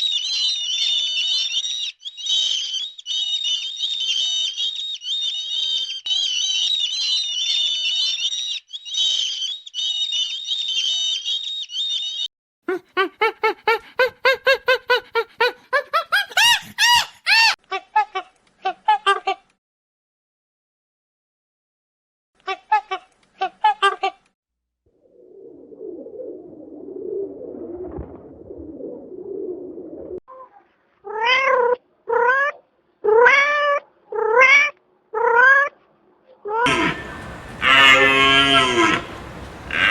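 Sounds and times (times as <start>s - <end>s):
animal rising-and-falling cries: 36.6s - 39.9s
cat meowing: 36.7s - 39.9s
small birds chirping: 36.7s - 39.9s.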